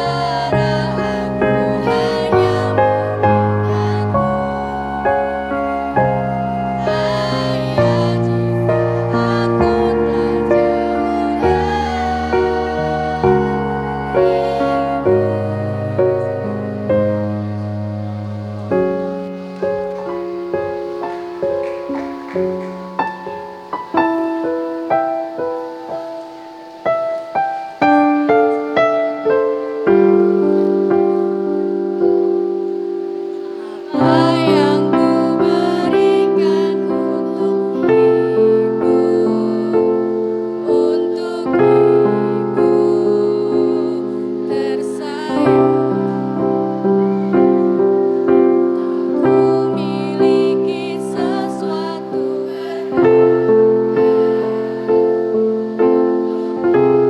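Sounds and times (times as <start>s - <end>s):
piano playing: 0.0s - 57.0s
electronic keyboard chords: 14.9s - 36.1s.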